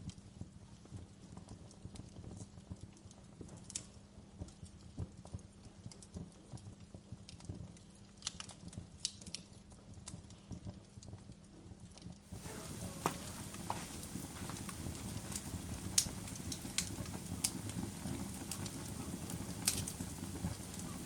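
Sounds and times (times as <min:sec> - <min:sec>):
campfire crackling and popping: 0:06.8 - 0:09.4, 0:12.3 - 0:21.0
low rumble of flames: 0:12.3 - 0:21.0.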